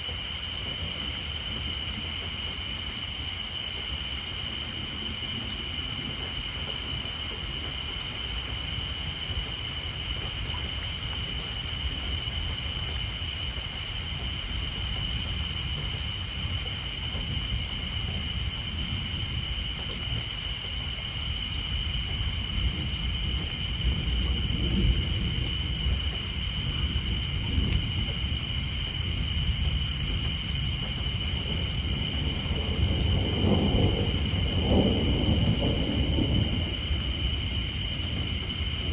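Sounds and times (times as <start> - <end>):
rain on a tin roof: 0.0 - 38.9
tree frogs chorus: 0.0 - 38.9
distant thunder rumbling: 21.6 - 38.9.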